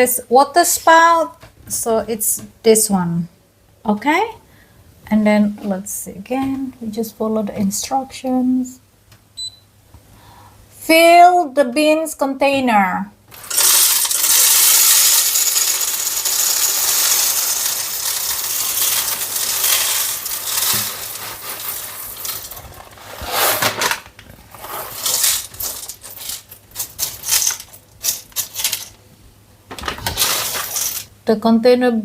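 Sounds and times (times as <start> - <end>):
beans clicking and rattling: 13.3 - 29.0, 29.8 - 31.1
coffee beans pouring into hopper: 13.4 - 22.8, 24.6 - 28.2, 30.2 - 31.1.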